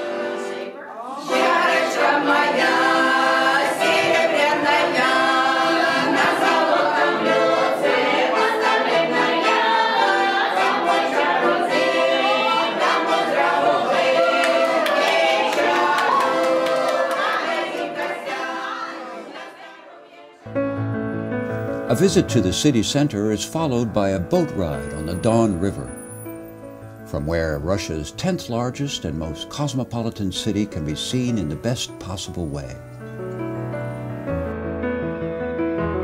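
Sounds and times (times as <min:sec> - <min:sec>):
choir singing a cappella: 0:00.0 - 0:20.5.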